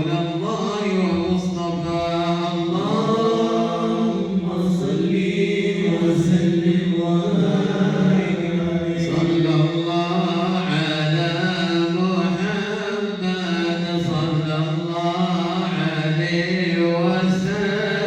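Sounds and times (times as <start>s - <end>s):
men chanting in unison: 0.0s - 18.0s.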